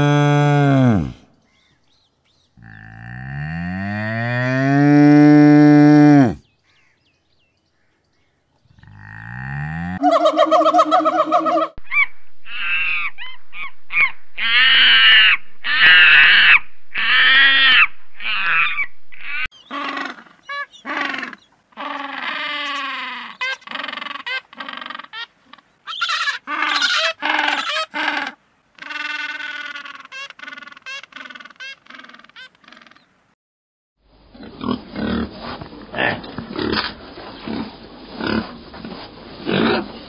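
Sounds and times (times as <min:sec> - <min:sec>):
monkey high-pitched cries: 0:10.0 - 0:33.0.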